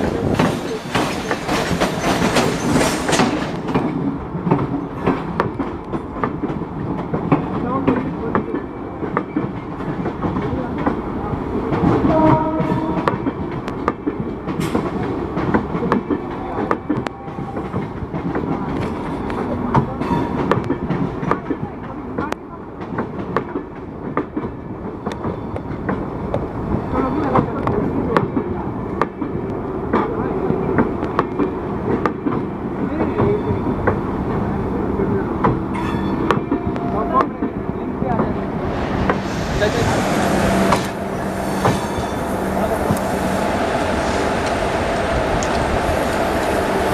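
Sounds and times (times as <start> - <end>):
train wheels clicking over rail joints: 0.0 - 11.0
train rumble: 0.0 - 46.9.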